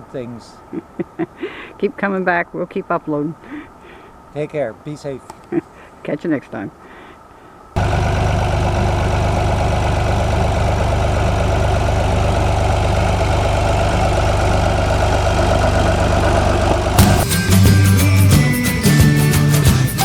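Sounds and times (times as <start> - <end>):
tractor engine idling: 7.8 - 19.9
music: 17.0 - 20.0.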